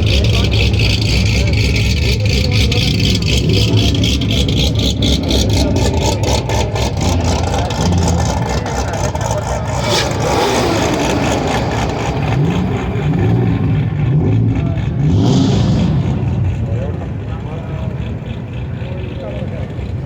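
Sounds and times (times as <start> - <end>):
car engines running loudly: 0.0 - 20.0
engine revving: 0.0 - 20.0.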